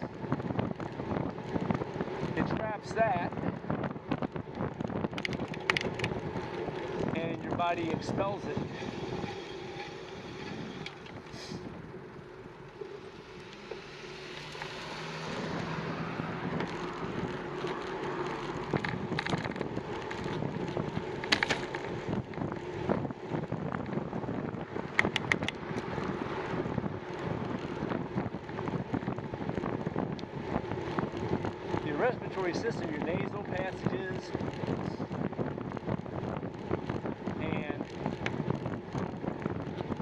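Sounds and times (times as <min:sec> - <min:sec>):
bicycle road noise: 0:00.0 - 0:40.0
wind rushing over microphone: 0:00.0 - 0:40.0
sharp clicks or rattles: 0:04.5 - 0:07.2, 0:16.5 - 0:22.2, 0:24.9 - 0:25.9.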